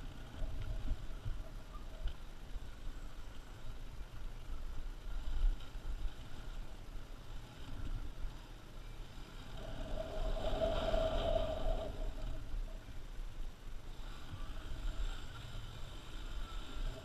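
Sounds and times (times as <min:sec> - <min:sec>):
wind buffeting microphone: 0:04.0 - 0:17.0.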